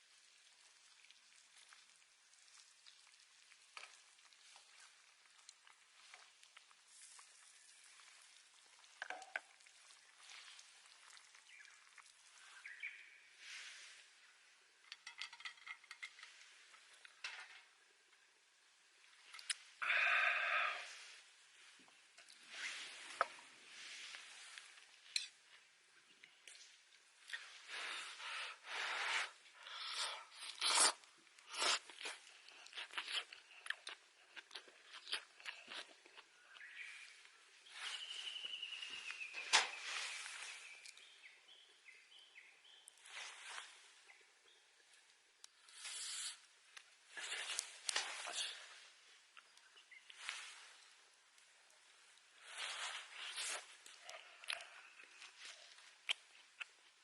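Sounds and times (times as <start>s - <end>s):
faint sizzling and crackling: 0.0s - 57.0s
low hiss: 15.6s - 32.2s, 36.4s - 57.0s
crunching and rustling: 45.5s - 57.0s.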